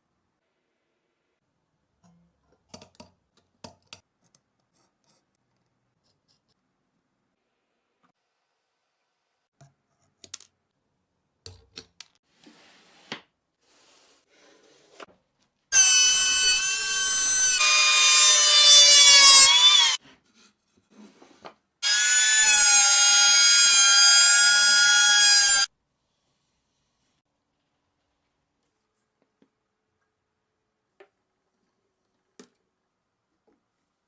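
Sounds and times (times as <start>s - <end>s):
power tool motor whining: 15.8s - 20.0s, 21.8s - 25.7s.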